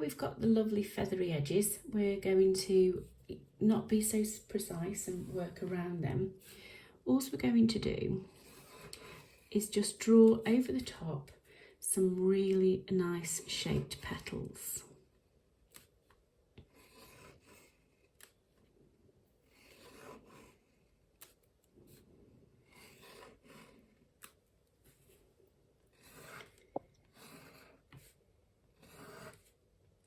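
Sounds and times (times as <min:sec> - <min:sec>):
drawing tool scratching on paper: 0:04.6 - 0:06.6, 0:08.2 - 0:10.0, 0:16.6 - 0:18.3, 0:19.4 - 0:25.2, 0:25.8 - 0:29.8.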